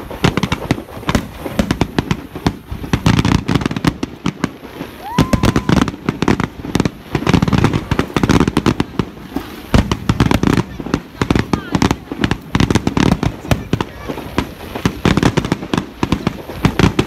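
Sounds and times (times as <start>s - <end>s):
fireworks bangs and crackles: 0.0s - 17.0s
rising firework whistle: 4.6s - 7.7s.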